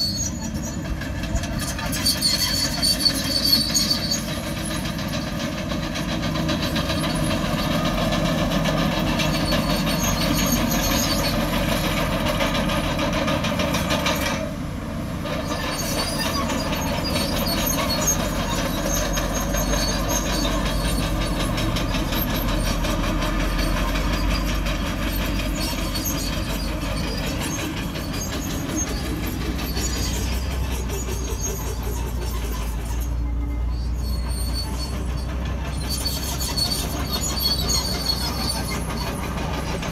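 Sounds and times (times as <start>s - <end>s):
bulldozer diesel engine running: 0.0s - 39.9s
steel tracks clanking and squealing: 0.0s - 39.9s.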